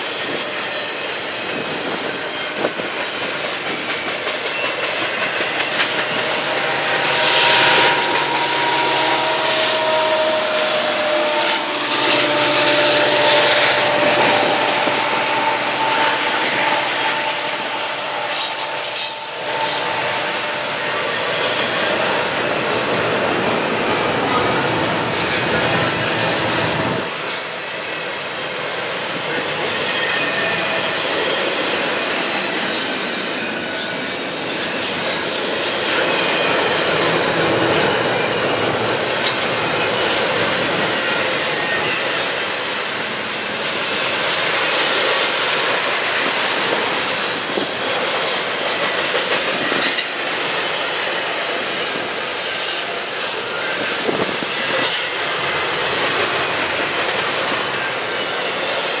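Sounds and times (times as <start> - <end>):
steel wheels rumbling on rail: 0.0 - 59.0
high wheel squeal: 4.4 - 23.0, 23.9 - 27.6, 49.5 - 55.2.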